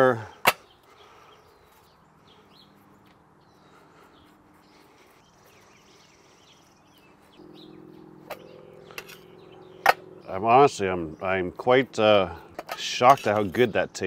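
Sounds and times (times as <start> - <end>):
faint birds chirping: 0.0 - 14.0
low hum: 4.7 - 12.8.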